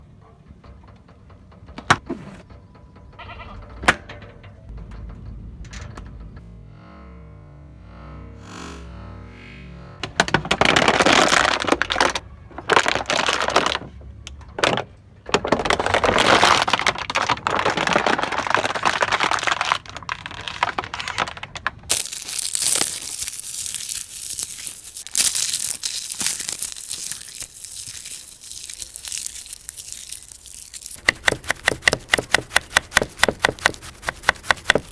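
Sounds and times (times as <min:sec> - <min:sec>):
balloons crackling and crinkling: 0:10.4 - 0:13.9, 0:15.5 - 0:34.9.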